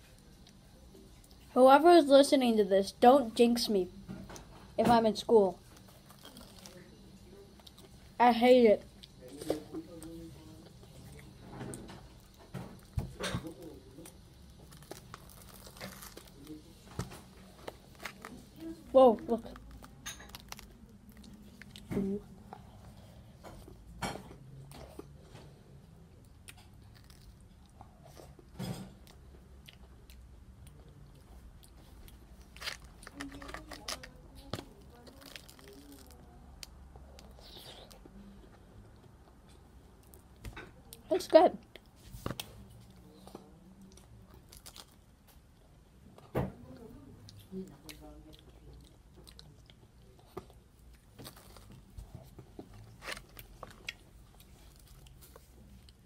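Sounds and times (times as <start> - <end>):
chewing crunchy food: 5.6 - 8.1, 8.9 - 18.6, 26.2 - 41.0, 47.2 - 56.0
crust crunching: 13.6 - 18.6, 32.4 - 36.2.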